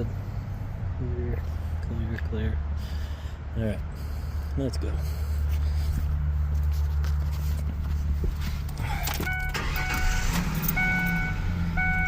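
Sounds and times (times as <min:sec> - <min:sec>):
dashboard warning chime: 0:09.2 - 0:12.0.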